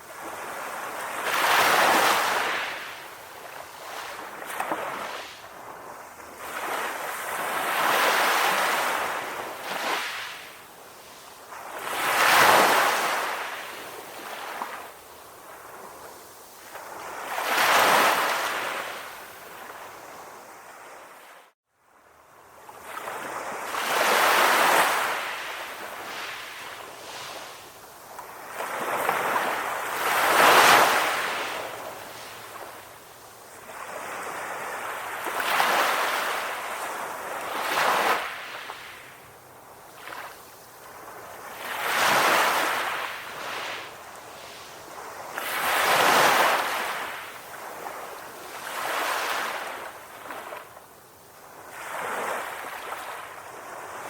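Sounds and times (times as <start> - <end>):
ocean waves breaking: 22.8 - 39.1.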